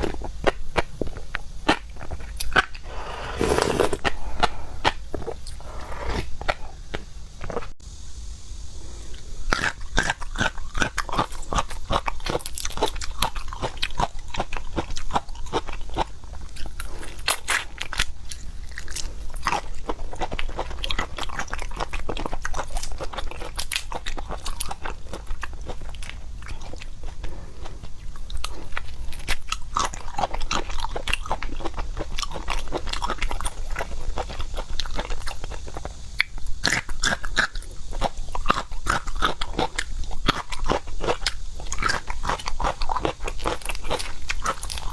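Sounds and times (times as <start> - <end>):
crunching bites: 0.0 - 7.7
wet chewing: 0.0 - 7.7, 9.5 - 44.9.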